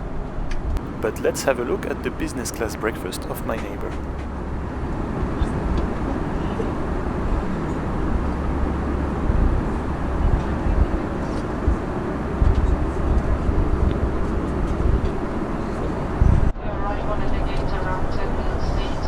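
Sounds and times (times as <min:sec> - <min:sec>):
aircraft engine drone: 0:00.8 - 0:05.0.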